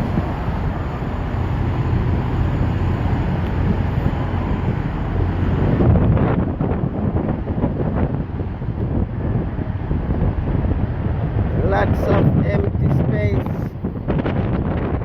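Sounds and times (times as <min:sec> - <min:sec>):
truck traffic rumble: 0:00.0 - 0:15.0
wind buffeting microphone: 0:00.0 - 0:15.0.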